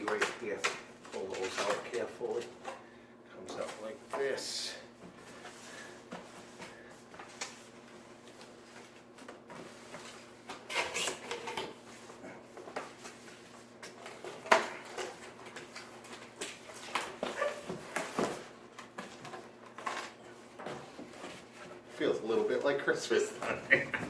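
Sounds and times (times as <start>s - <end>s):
packaging rustling and scraping: 5.3s - 21.9s.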